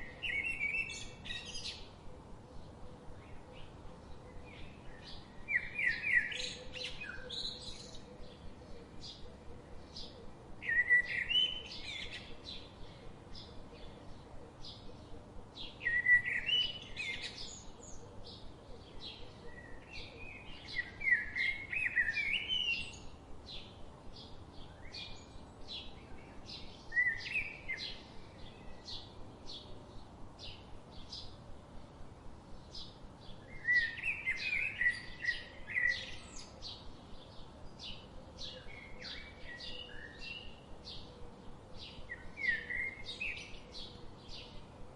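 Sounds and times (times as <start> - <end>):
bird warbling song: 0.0 - 31.4, 32.5 - 44.9.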